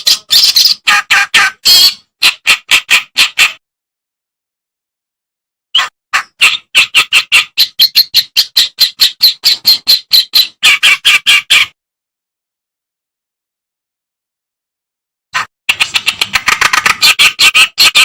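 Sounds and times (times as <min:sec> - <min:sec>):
warbler singing harsh chattering notes: 0:00.0 - 0:02.0, 0:06.4 - 0:11.6.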